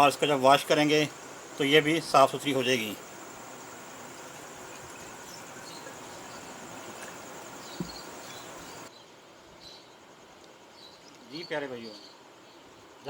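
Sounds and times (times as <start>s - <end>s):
high faint pulsing trill: 0.0s - 8.9s
soft chirps: 0.0s - 8.9s
background hiss: 0.0s - 13.0s
soft knock: 7.7s - 8.1s.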